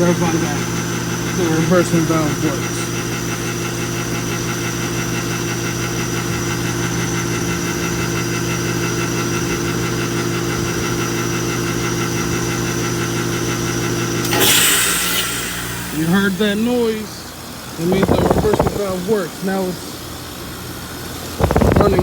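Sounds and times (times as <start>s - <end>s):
heat pump humming: 0.0s - 22.0s
sudden loud rush of noise: 14.3s - 17.0s.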